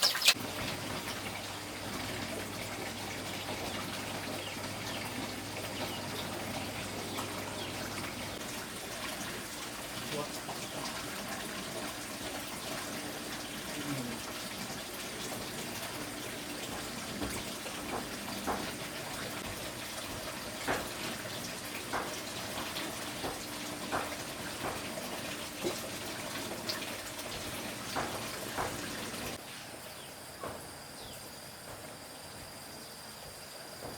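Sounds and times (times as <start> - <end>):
running water: 0.0 - 29.4.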